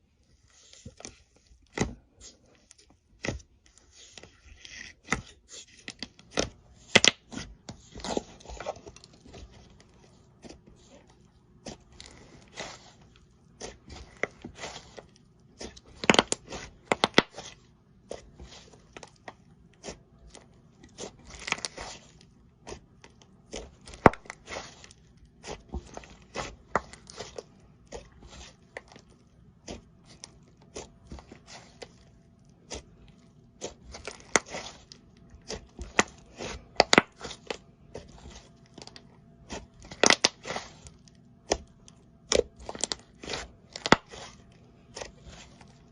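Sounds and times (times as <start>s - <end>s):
slime crackling and popping: 33.6s - 37.5s, 39.5s - 44.4s.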